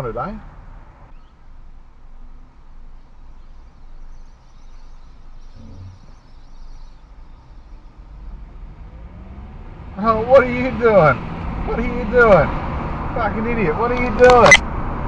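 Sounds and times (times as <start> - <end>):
car engine and tyres rumbling: 0.0 - 15.0
brief low hum: 5.4 - 9.8.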